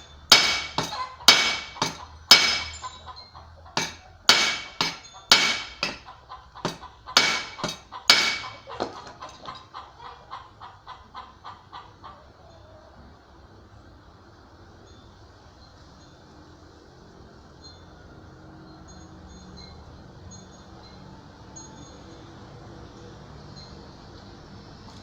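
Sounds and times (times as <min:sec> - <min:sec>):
hammer striking metal: 0:00.0 - 0:03.1, 0:03.8 - 0:09.6.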